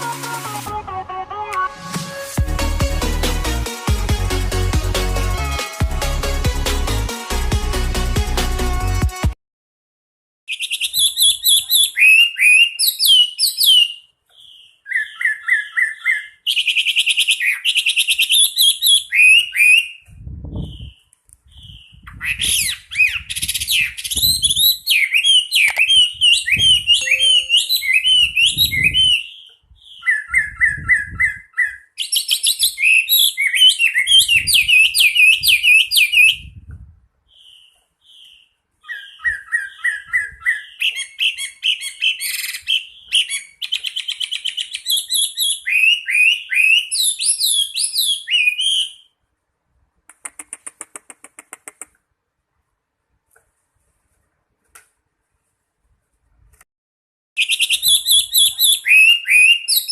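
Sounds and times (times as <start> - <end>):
bird singing whistled phrases: 10.5 - 20.0, 20.6 - 36.6, 37.4 - 49.1, 57.4 - 59.9.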